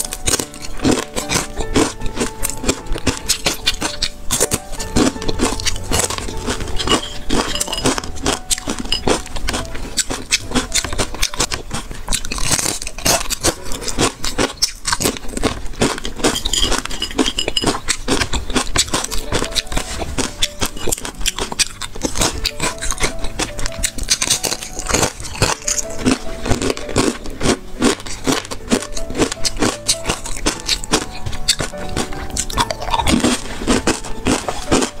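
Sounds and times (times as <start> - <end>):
person crunching crispy food: 0.0 - 35.0
soft background music: 0.0 - 35.0.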